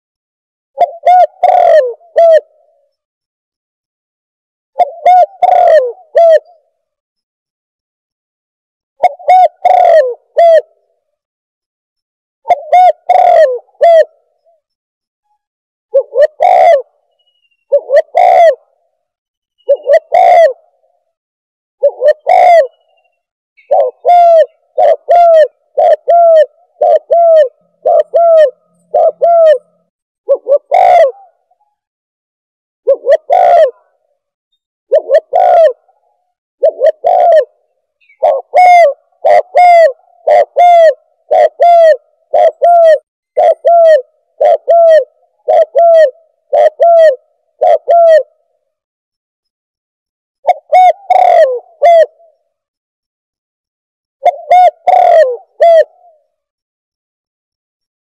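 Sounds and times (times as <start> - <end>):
dove cooing: 0.8 - 3.0, 4.8 - 6.7, 9.0 - 10.9, 12.4 - 14.6, 15.9 - 17.0, 17.6 - 18.8, 19.6 - 20.8, 21.8 - 31.8, 32.8 - 34.1, 34.9 - 48.5, 50.4 - 52.4, 54.2 - 56.4.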